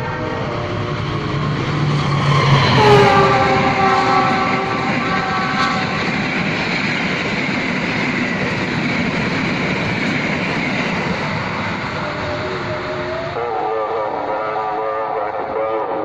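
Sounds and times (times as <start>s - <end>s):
train wheels rumbling on rails: 0.0s - 16.0s
train horn blast: 2.0s - 6.4s.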